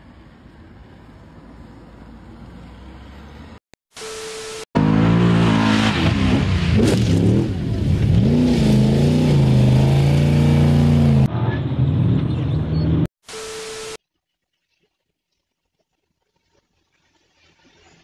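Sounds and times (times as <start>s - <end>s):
short steady beep: 4.0s - 4.7s, 12.8s - 14.0s
rally car engine revving hard: 4.8s - 11.3s
static hiss: 13.2s - 14.0s.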